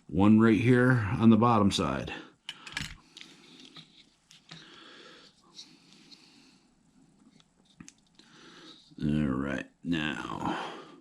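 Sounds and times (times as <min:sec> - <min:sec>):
small parts and tool clicking: 0:02.5 - 0:04.6.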